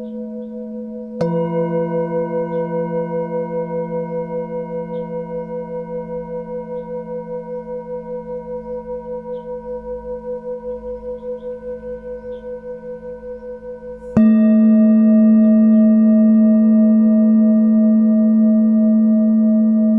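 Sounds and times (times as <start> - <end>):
singing bowl ringing: 0.0 - 19.9
small birds chirping: 10.6 - 12.7.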